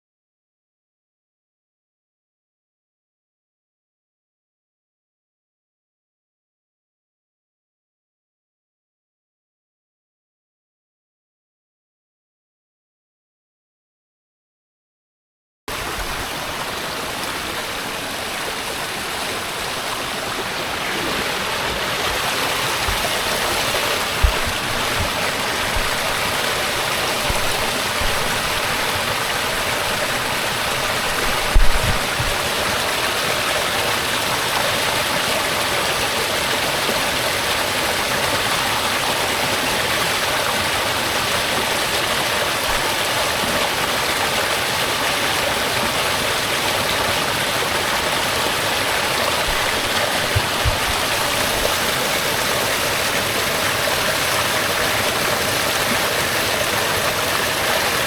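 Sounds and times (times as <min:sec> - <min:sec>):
small waterfall rushing: 0:15.7 - 0:58.0
dull low bump: 0:22.0 - 0:26.5, 0:31.2 - 0:32.4.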